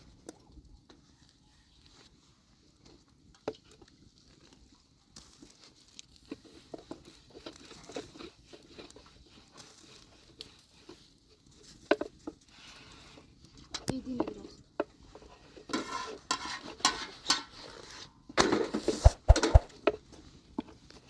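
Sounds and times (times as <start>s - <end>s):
rustling: 18.6s - 20.3s.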